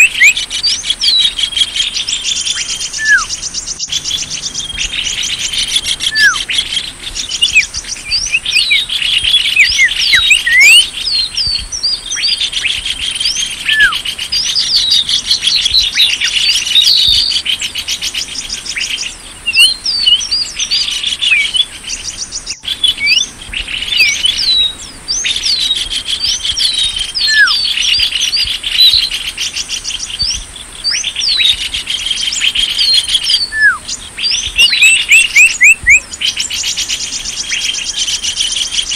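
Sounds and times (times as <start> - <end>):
songbirds trilling: 0.0 - 38.9
sharp downslurred bird whistles: 2.3 - 6.6, 7.3 - 15.1, 22.5 - 23.3, 23.9 - 29.1, 32.3 - 36.1.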